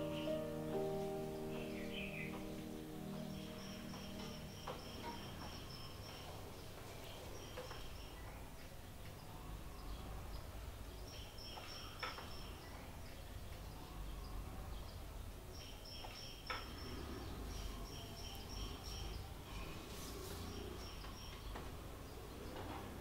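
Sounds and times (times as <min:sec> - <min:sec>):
insect-like chirping trills: 0:01.6 - 0:06.6.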